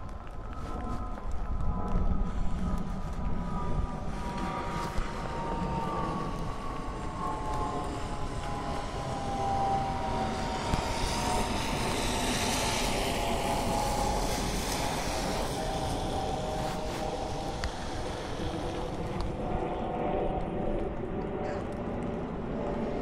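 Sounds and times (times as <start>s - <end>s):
faint wavering hum: 0.0s - 23.0s
traffic on wet street: 5.8s - 19.4s.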